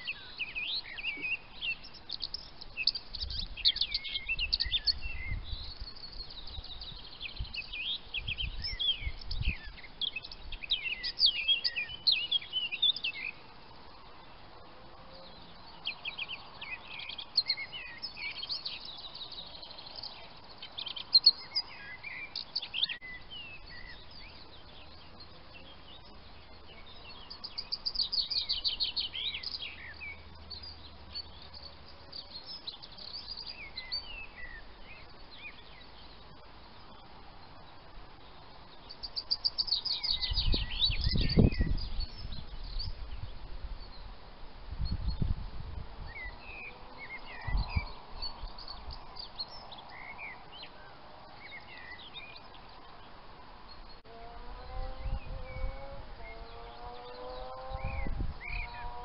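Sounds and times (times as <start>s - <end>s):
small birds singing and chirping: 0.0s - 59.0s.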